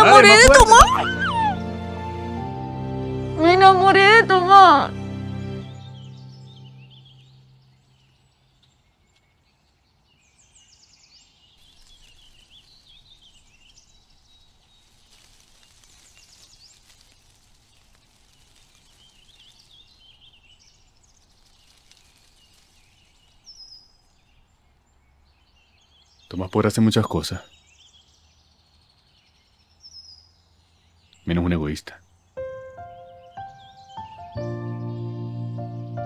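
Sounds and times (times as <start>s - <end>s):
small birds chirping: 0.0s - 2.4s, 3.4s - 36.0s.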